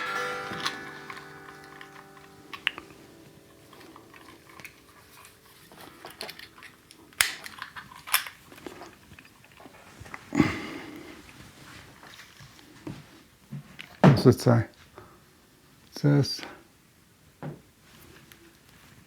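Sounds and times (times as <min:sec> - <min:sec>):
guitar strings ringing: 0:00.0 - 0:08.7
guitar handling clicks and knocks: 0:00.0 - 0:09.4.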